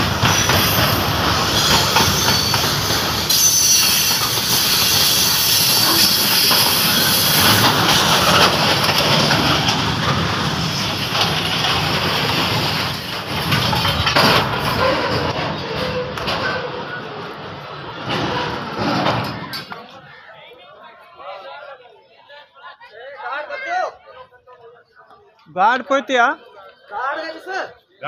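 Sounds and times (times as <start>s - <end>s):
wheel squeal on rail: 0.0s - 9.8s, 12.6s - 17.2s
freight train wheels clattering: 0.0s - 20.0s.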